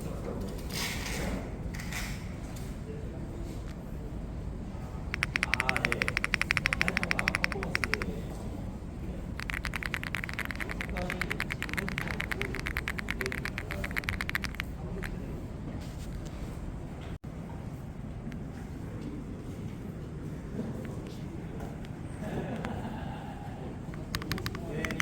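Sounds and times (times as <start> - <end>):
rapid keyboard typing: 5.1 - 8.3, 9.3 - 15.2, 24.0 - 25.0.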